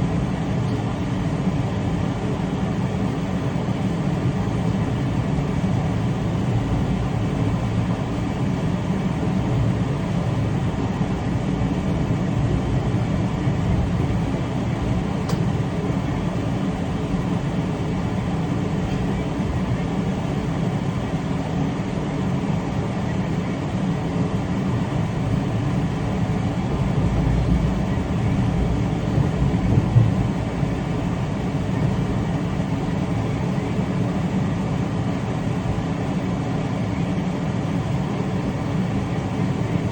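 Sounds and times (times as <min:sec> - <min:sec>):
train wheels rumbling on rails: 0:25.5 - 0:32.6
train knock: 0:29.5 - 0:30.4.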